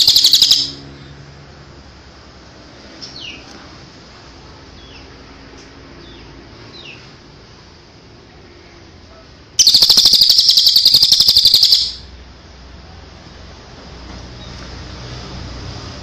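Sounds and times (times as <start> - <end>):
songbird chirps: 0.0 - 0.8, 9.6 - 12.1
songbird rapid trill: 0.0 - 0.8, 9.6 - 12.1.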